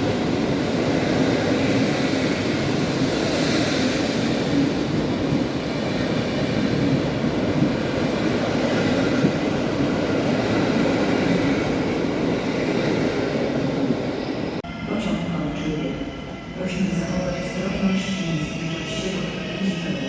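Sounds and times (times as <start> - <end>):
train wheels rumbling on rails: 0.0 - 14.6.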